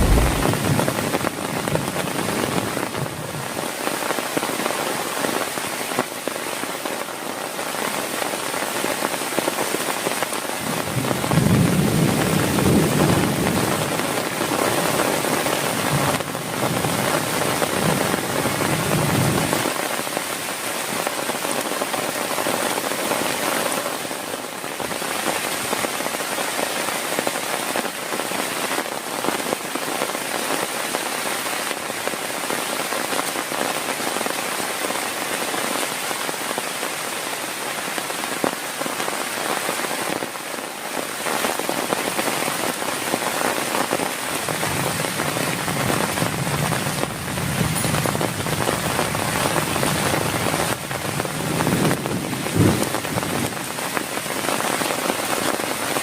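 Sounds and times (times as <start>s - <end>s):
low rumble: 0.0s - 0.9s
heavy rain patter: 0.0s - 56.0s.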